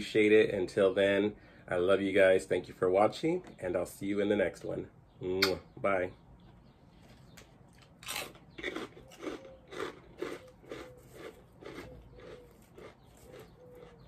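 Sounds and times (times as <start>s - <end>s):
crunching and chewing popcorn: 6.9s - 14.0s.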